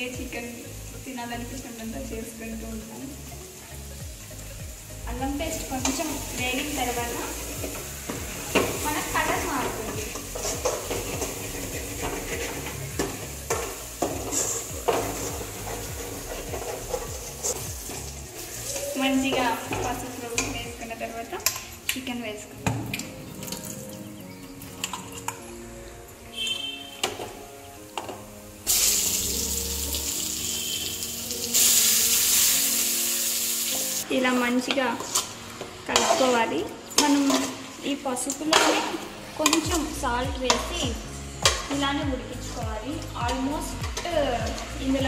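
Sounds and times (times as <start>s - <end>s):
paste sizzling in oil: 0.2s - 21.0s, 28.5s - 37.9s
metal spatula scraping pan: 6.8s - 20.5s, 35.9s - 37.7s, 38.4s - 39.7s.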